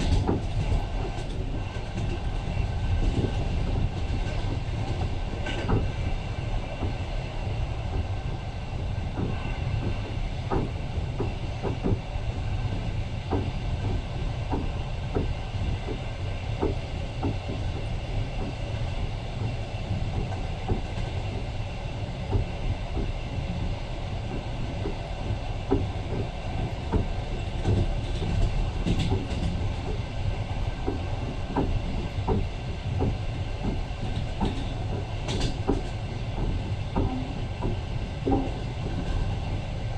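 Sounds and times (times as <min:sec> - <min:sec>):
wheels clicking over rail joints: 0:00.0 - 0:07.1, 0:24.2 - 0:39.9
train low rumble: 0:00.0 - 0:39.9.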